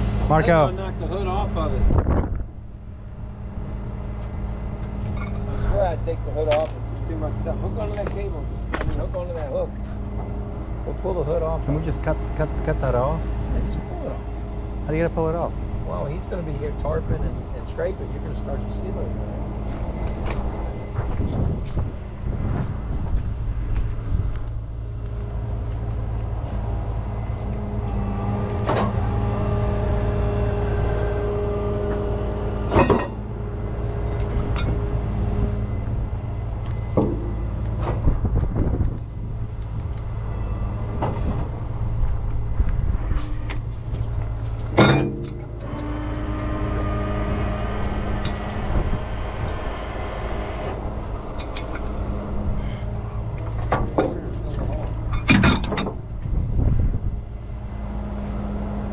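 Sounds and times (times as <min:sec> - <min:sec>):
heavy vehicle engine running: 0:00.0 - 0:58.9
metal knocks and clanks: 0:32.6 - 0:35.9, 0:36.6 - 0:39.0, 0:43.1 - 0:46.8, 0:53.2 - 0:56.4.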